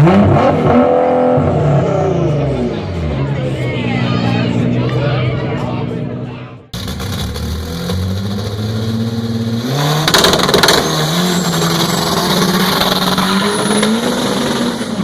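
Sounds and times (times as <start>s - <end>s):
car engine revving loudly: 0.0s - 3.2s, 6.8s - 15.0s.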